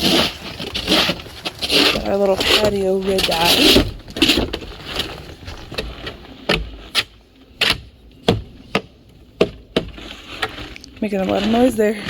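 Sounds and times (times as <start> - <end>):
sharp knocks: 7.6 - 10.0.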